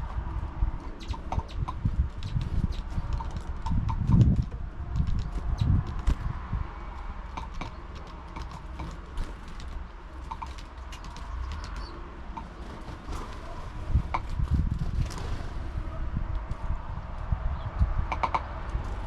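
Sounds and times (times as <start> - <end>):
birds pecking at feeder: 0.8 - 15.6.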